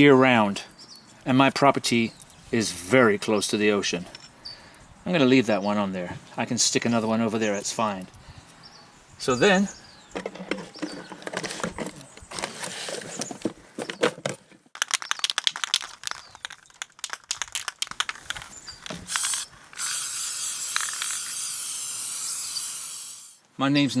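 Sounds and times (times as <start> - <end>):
spray can rattling: 14.8 - 23.4
spray paint hissing: 19.0 - 23.4.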